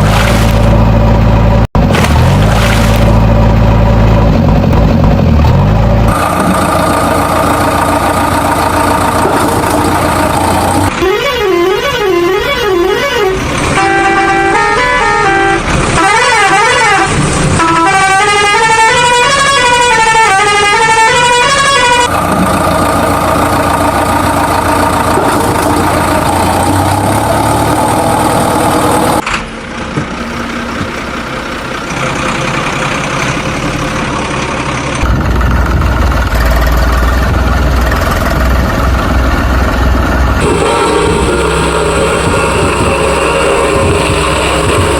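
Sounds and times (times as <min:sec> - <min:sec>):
heavy low rumble: 0:00.0 - 0:11.0, 0:34.9 - 0:44.9
vehicle engine and road noise: 0:00.0 - 0:44.9
truck horn warbling tones: 0:06.1 - 0:29.2, 0:40.4 - 0:44.9.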